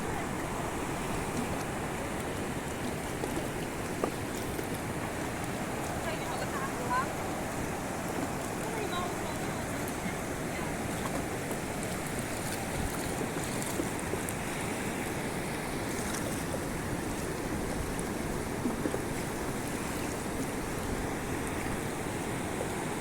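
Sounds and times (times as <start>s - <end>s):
rushing river water at waterfall: 0.0s - 23.0s.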